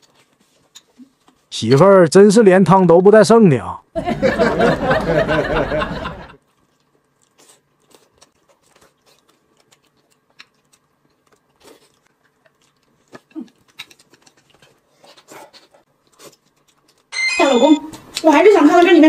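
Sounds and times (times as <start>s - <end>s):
faint chewing and mouth clicks: 0.0s - 1.8s, 6.4s - 17.1s.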